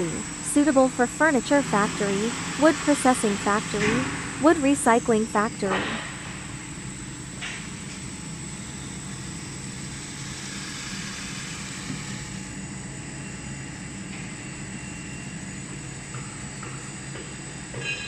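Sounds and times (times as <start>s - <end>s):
sanding machine hum and hiss: 0.0s - 5.8s, 9.8s - 12.5s.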